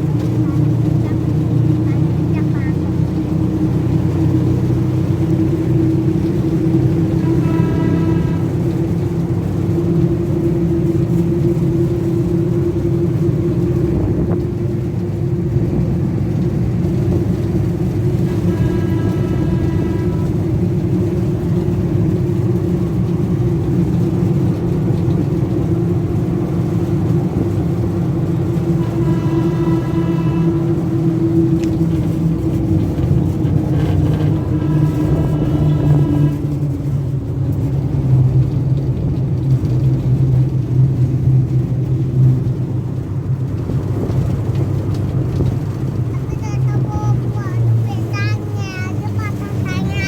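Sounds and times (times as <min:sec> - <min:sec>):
ride train engine droning: 0:00.0 - 0:50.0
short pitched tone: 0:07.0 - 0:08.8, 0:18.3 - 0:20.4, 0:28.6 - 0:32.2.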